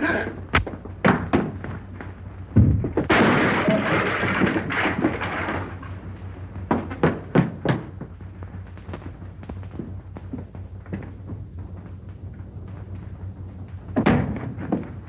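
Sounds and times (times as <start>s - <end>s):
sharp knock: 0.5s - 0.8s
cluster of knocks and thuds: 0.5s - 1.7s, 2.6s - 5.3s, 14.0s - 15.0s.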